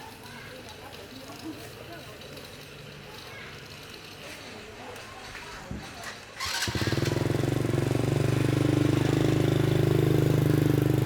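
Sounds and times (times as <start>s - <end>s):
small engine idling: 6.4s - 11.0s.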